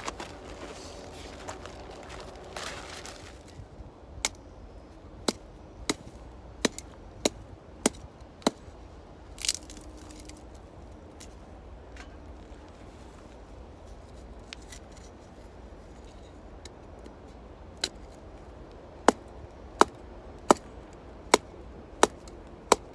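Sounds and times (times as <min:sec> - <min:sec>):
wood crunch: 0:00.0 - 0:03.6.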